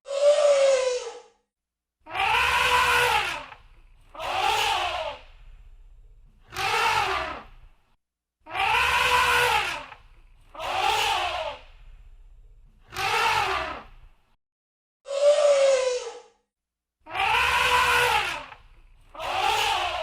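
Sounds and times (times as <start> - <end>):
elephant trumpeting: 2.1 - 5.2, 8.5 - 11.6, 17.1 - 18.6.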